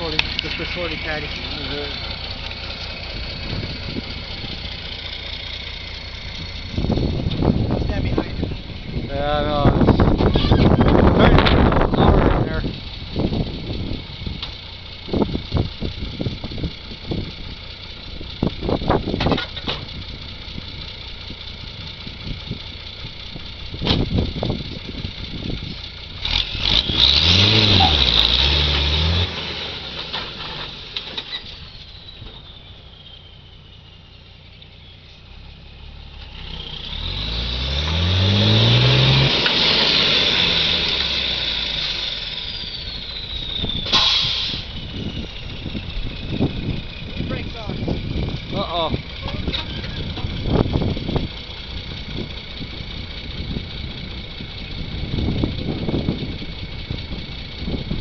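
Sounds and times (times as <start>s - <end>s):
vehicle engine revving: 0.0s - 58.0s
clanks and knocks: 19.1s - 19.9s.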